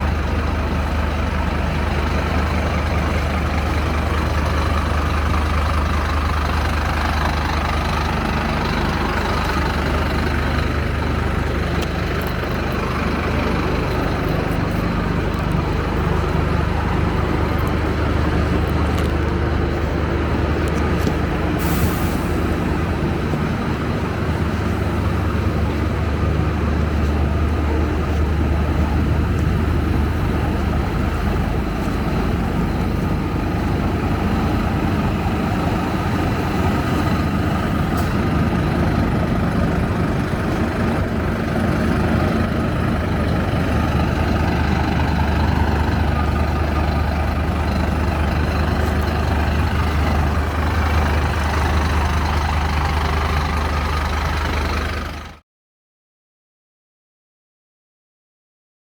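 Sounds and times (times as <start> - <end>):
bus diesel engine idling: 0.0 - 55.4
air brake hiss: 21.6 - 22.4.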